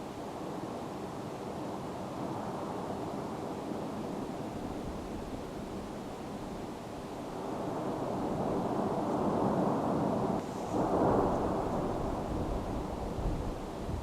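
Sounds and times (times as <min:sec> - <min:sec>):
volcano erupting with rushing roar: 0:07.3 - 0:14.0.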